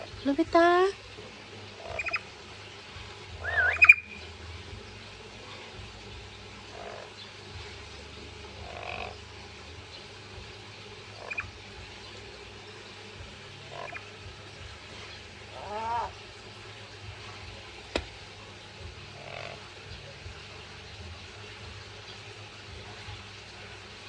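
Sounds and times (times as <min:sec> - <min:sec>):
parrot croaking calls: 0:01.8 - 0:02.2, 0:03.4 - 0:04.2, 0:06.7 - 0:07.2, 0:08.6 - 0:09.2, 0:11.1 - 0:11.5, 0:13.6 - 0:14.1, 0:15.5 - 0:16.2, 0:19.2 - 0:19.7.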